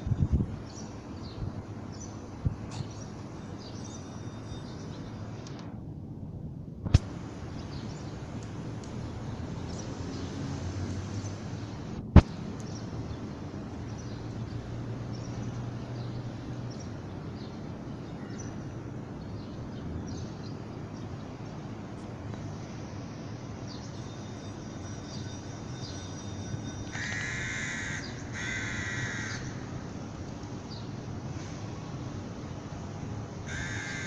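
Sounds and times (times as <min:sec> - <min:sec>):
outdoor background noise: 0:00.0 - 0:34.0.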